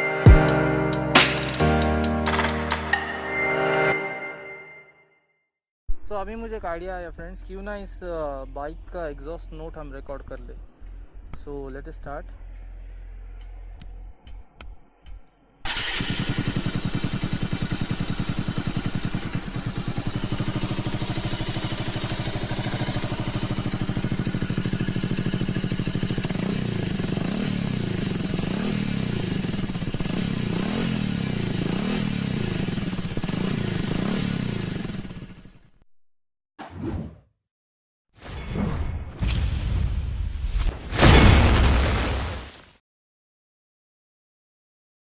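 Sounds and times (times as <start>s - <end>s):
motorcycle throttle blips: 15.7s - 34.2s
motorcycle engine idling: 15.7s - 35.7s.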